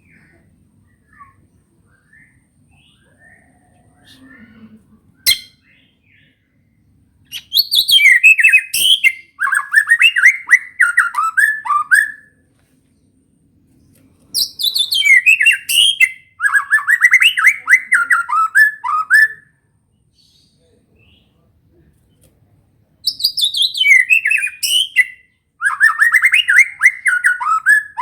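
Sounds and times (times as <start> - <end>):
bird singing chirps and trills: 7.3 - 12.2, 14.4 - 19.4, 23.0 - 28.0.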